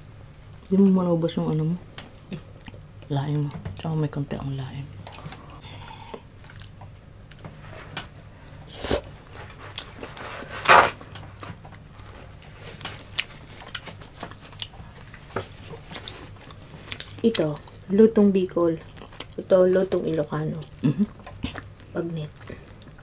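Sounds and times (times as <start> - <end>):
chewing: 4.9 - 10.3, 11.0 - 17.9, 18.8 - 23.0.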